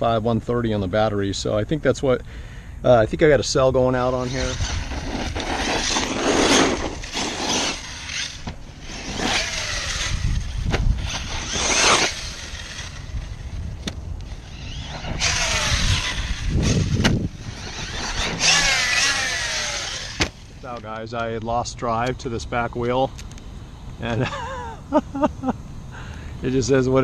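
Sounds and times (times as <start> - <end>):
rc truck running over ground: 3.9 - 20.9
electric motor whining: 4.0 - 20.8.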